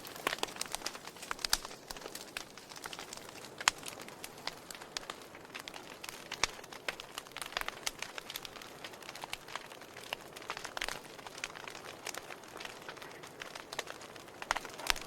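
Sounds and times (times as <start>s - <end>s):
logs crackling and popping: 0.0s - 15.0s.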